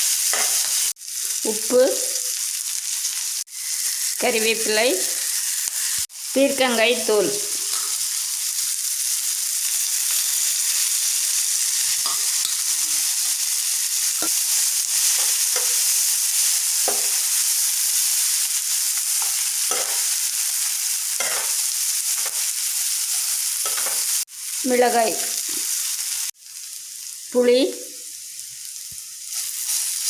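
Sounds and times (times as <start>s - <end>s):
vegetables sizzling in oil: 0.0s - 30.0s
spoon scraping and knocking pan: 0.2s - 0.8s, 11.9s - 13.4s, 14.1s - 17.5s, 19.1s - 22.5s, 23.1s - 24.2s.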